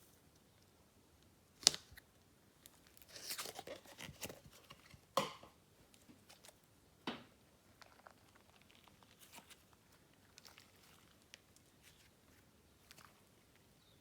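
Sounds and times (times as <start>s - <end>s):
slime squishing: 7.6s - 13.5s.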